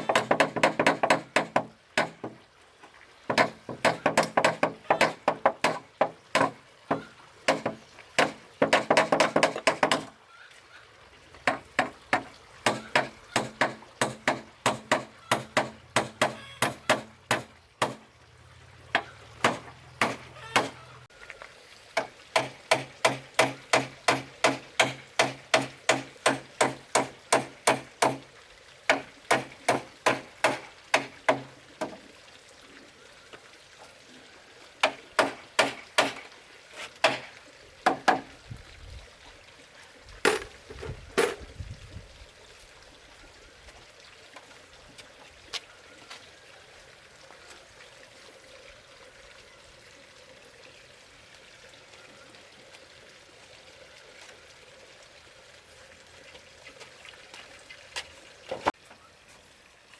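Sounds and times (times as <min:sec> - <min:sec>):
tool striking wood: 0:00.0 - 0:02.4, 0:03.3 - 0:10.1, 0:11.5 - 0:18.0, 0:19.0 - 0:20.8, 0:22.0 - 0:28.2, 0:34.8 - 0:36.3.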